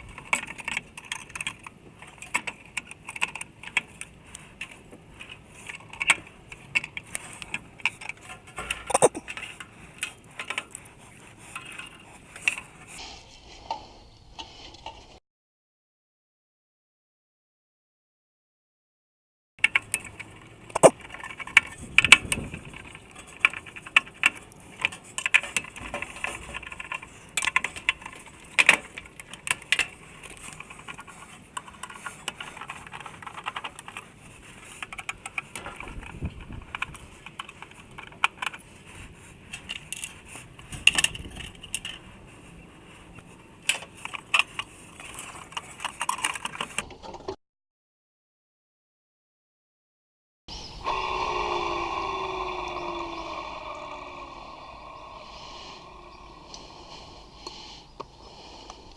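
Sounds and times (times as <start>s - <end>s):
metal tools clicking and clinking: 0.0s - 12.8s, 19.6s - 42.6s.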